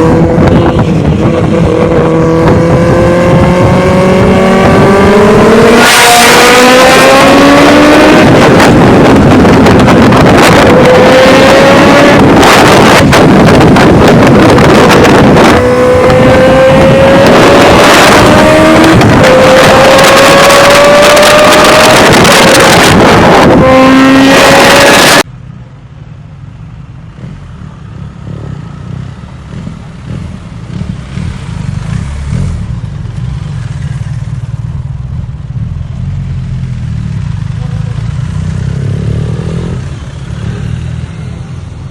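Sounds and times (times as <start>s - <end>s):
low rumble: 0.0s - 5.6s
motorcycle engine accelerating: 0.0s - 25.3s, 27.1s - 41.9s.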